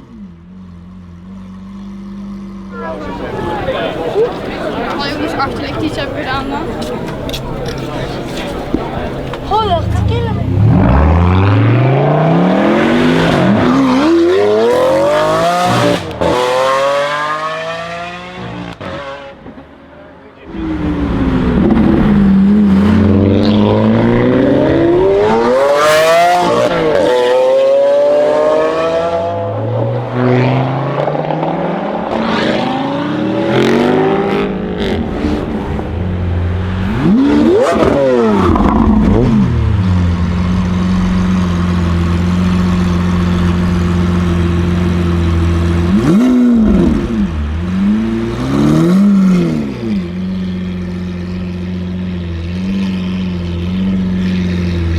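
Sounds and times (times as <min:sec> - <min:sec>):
sports car engine revving: 0:00.8 - 0:19.6, 0:20.5 - 0:54.9
car engine idling: 0:02.7 - 0:11.2, 0:34.8 - 0:54.9
exhaust crack: 0:02.8 - 0:16.5, 0:33.4 - 0:54.9.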